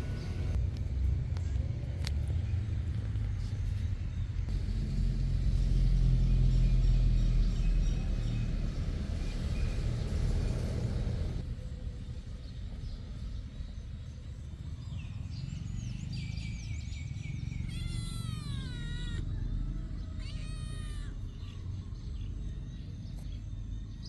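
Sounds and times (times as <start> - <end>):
cat mewing: 17.6 - 21.7.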